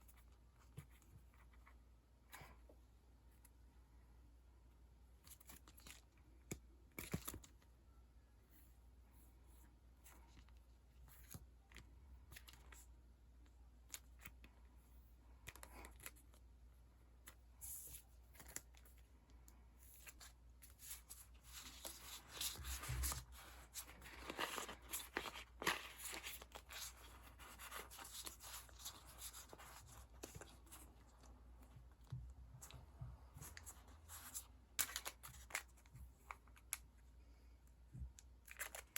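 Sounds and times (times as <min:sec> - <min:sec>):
sticker sheets rustling: 0:19.8 - 0:36.8.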